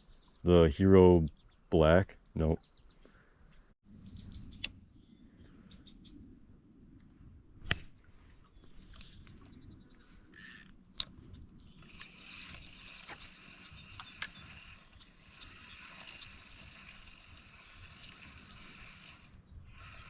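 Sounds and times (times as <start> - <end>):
high-pitched hum: 10.2 - 16.6.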